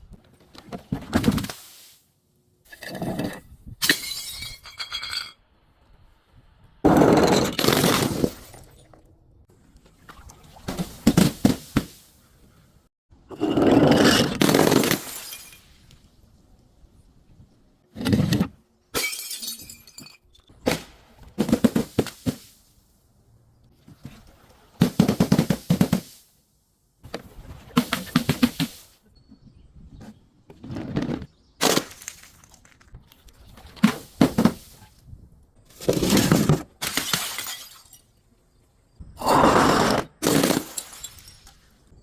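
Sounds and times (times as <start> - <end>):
glass bottles crushing and shattering: 2.7 - 5.4, 6.9 - 8.8, 13.4 - 15.8, 19.0 - 20.5, 35.8 - 38.2, 40.2 - 41.7.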